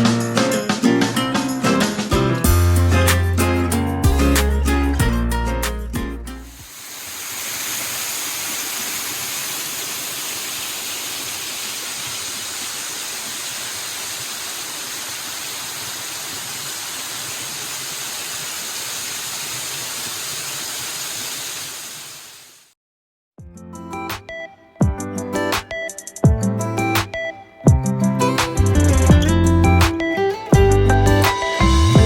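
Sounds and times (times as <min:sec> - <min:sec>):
waterfall rushing: 0:06.5 - 0:22.6.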